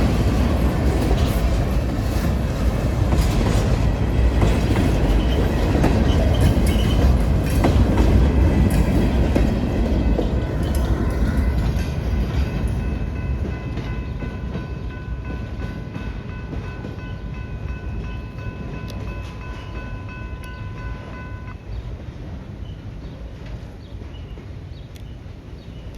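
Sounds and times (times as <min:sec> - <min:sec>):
freight train rumbling: 0:00.0 - 0:25.9.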